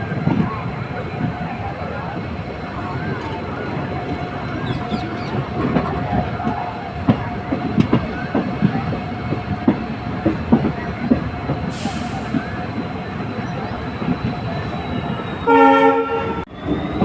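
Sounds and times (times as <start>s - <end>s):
train rumbling: 0.0s - 17.0s
wheels clacking over rail joints: 2.1s - 15.4s.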